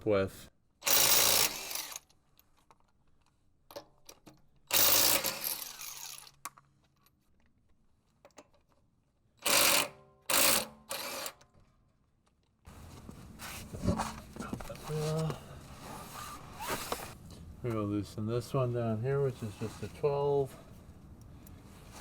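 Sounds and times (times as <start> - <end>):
wrench mechanical clatter: 0.9 - 2.8, 3.7 - 7.2.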